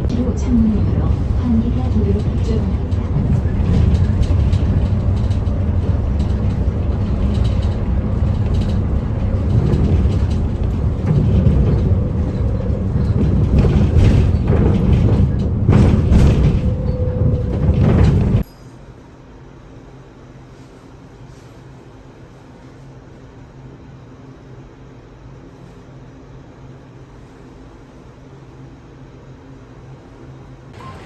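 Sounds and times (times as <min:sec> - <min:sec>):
knocks and rattles: 0:00.0 - 0:18.5
moving vehicle rumble: 0:00.0 - 0:18.5, 0:30.7 - 0:31.0.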